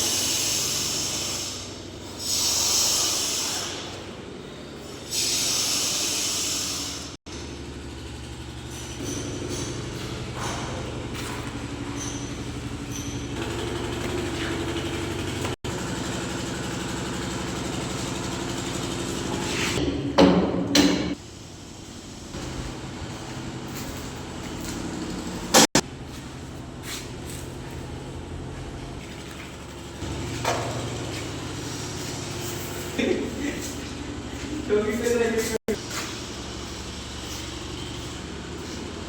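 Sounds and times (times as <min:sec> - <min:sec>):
engine running: 0:06.8 - 0:39.0.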